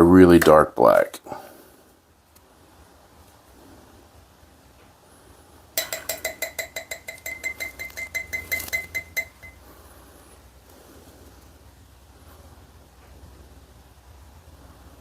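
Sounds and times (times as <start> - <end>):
rapid bell-like clinks: 5.8 - 9.6.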